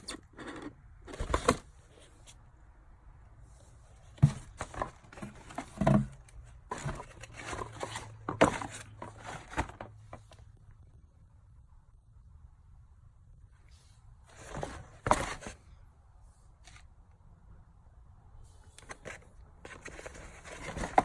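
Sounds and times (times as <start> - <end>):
packaging rustles and knocks: 4.1 - 9.9, 18.9 - 21.0.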